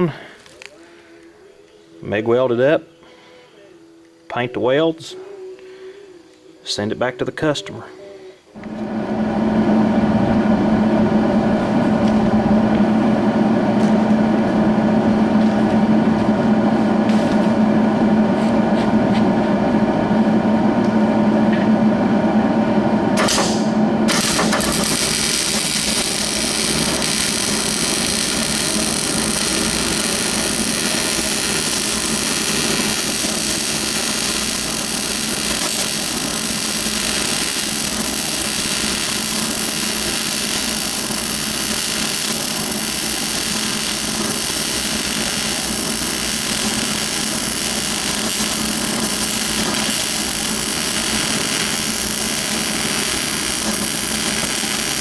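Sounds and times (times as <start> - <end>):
welding arc crackling: 8.6 - 19.1, 23.2 - 55.0
machine hum: 8.6 - 55.0.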